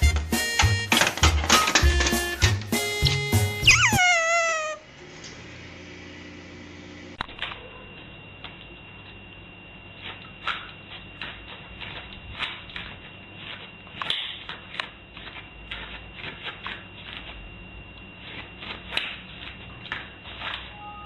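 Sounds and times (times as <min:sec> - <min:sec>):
faint high-pitched tone: 0:03.7 - 0:04.8.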